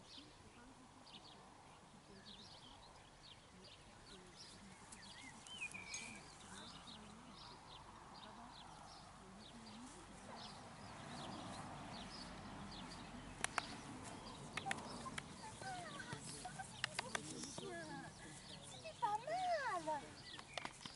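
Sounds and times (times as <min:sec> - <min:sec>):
small birds chirping: 0:00.0 - 0:20.9
sharp clicks: 0:13.4 - 0:13.9, 0:14.5 - 0:15.4, 0:16.1 - 0:17.6, 0:20.3 - 0:20.9.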